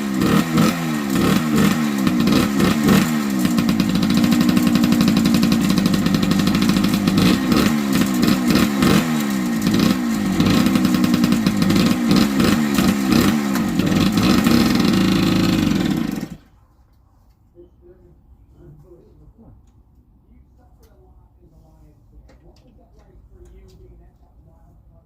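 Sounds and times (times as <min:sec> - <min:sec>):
two-stroke engine revving: 0:00.0 - 0:16.5.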